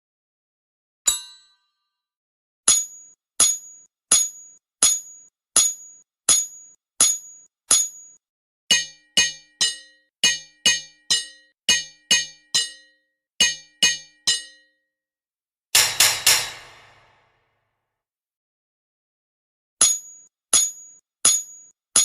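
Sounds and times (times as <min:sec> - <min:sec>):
hammer striking metal: 0:02.7 - 0:14.7, 0:15.8 - 0:17.4.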